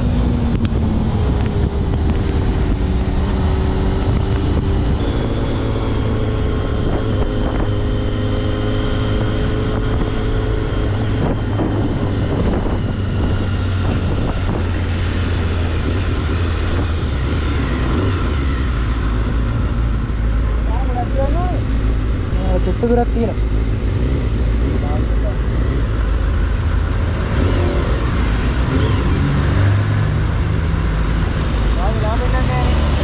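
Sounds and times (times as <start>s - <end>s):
wind buffeting microphone: 0.0s - 20.4s.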